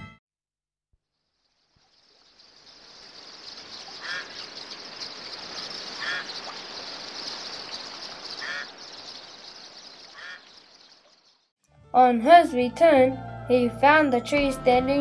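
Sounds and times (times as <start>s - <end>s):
bird calls: 1.8s - 11.5s
steady high-pitched hiss: 1.9s - 10.2s.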